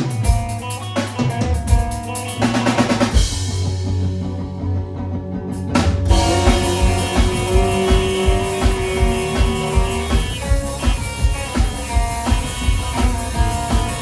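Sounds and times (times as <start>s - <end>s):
live band playing: 0.0s - 14.0s
cymbal crash: 6.1s - 14.0s.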